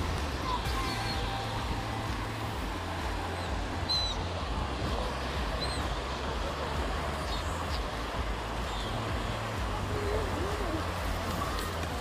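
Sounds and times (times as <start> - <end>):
steady rushing noise: 0.0 - 12.0
high bird chirps: 3.9 - 4.3.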